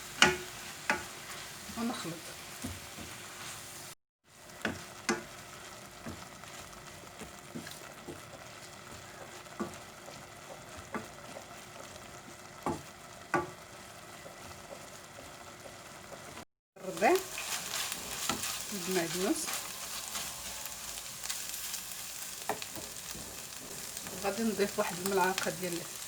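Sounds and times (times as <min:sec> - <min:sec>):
food sizzling in frying pan: 0:00.0 - 0:26.0.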